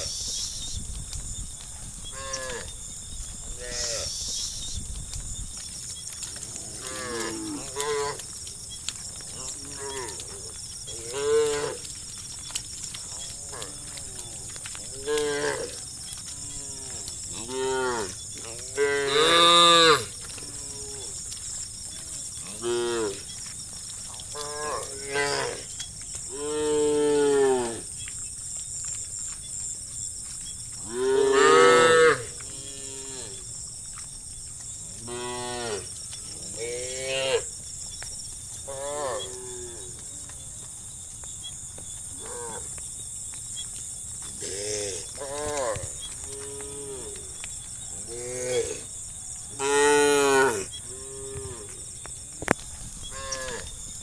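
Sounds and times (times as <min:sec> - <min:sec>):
cows mooing: 0:09.2 - 0:12.0, 0:13.1 - 0:21.4, 0:24.3 - 0:25.7, 0:30.8 - 0:33.4, 0:49.6 - 0:51.8, 0:53.1 - 0:53.7.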